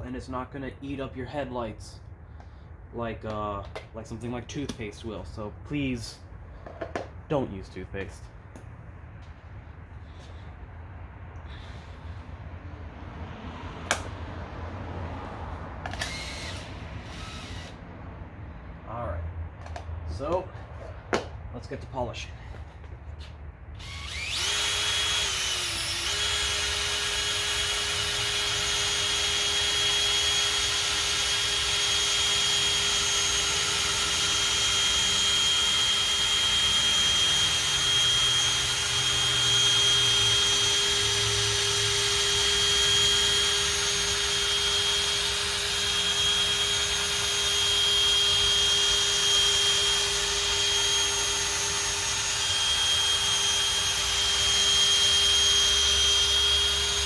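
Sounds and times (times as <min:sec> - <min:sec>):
electric drill polishing whine: 0:15.8 - 0:17.8, 0:23.8 - 0:57.0.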